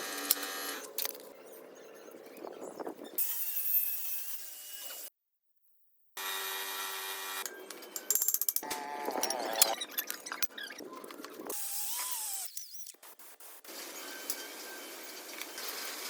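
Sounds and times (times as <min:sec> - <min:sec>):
whining power tool: 0:06.2 - 0:07.5.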